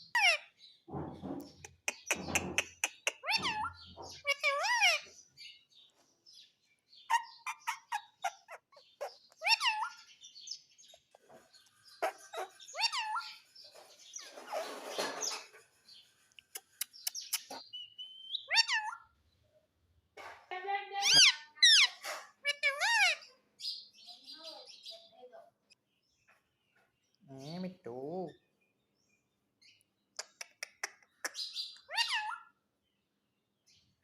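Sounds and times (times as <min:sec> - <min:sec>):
parrot squawk: 0:00.1 - 0:00.4, 0:02.9 - 0:05.1, 0:07.1 - 0:10.0, 0:12.0 - 0:13.4, 0:18.4 - 0:19.1, 0:21.0 - 0:23.3, 0:31.8 - 0:32.6
parrot chirps: 0:01.6 - 0:05.1, 0:07.0 - 0:10.1, 0:12.0 - 0:13.5, 0:16.4 - 0:19.1, 0:21.0 - 0:23.3, 0:30.2 - 0:32.6.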